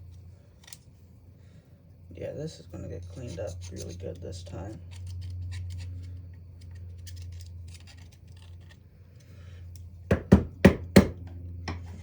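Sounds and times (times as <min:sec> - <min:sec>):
handling small parts: 0:00.0 - 0:01.1, 0:03.0 - 0:10.1
low steady hum: 0:00.0 - 0:12.0
sharp knocks: 0:10.1 - 0:11.8.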